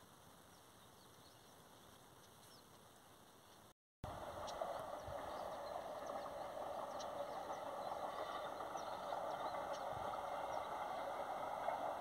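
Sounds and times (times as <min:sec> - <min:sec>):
distant train engine drone: 0:04.0 - 0:12.0.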